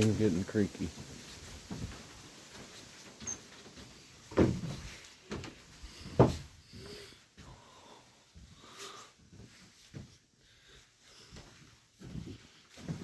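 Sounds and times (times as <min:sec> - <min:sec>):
footsteps on creaky wooden floor: 0:01.0 - 0:07.0, 0:11.3 - 0:13.0.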